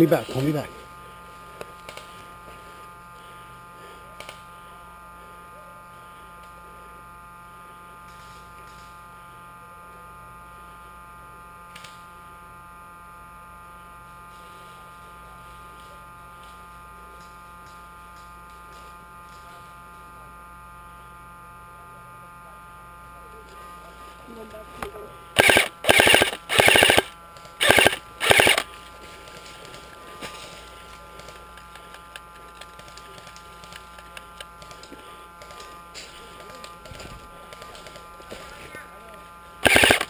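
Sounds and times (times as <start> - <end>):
steady electrical hum: 0.0 - 40.0.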